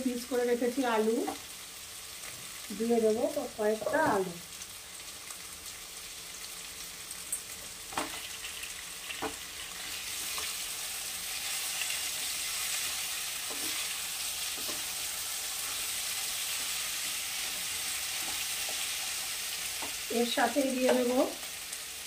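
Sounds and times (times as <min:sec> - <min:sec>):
vegetables sizzling in hot oil: 0:00.0 - 0:22.0
spatula stirring: 0:11.3 - 0:20.0.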